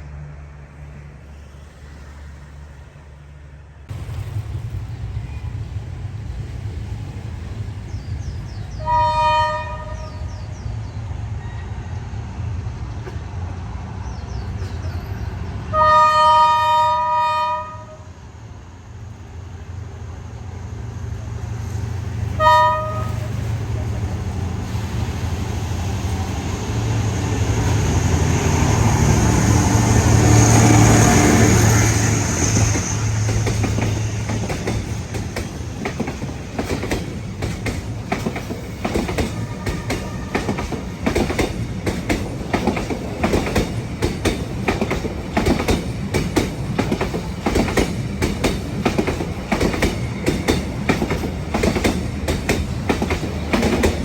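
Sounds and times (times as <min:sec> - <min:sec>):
locomotive engine drone: 0:16.5 - 0:54.0
wheels clacking over rail joints: 0:30.0 - 0:54.0.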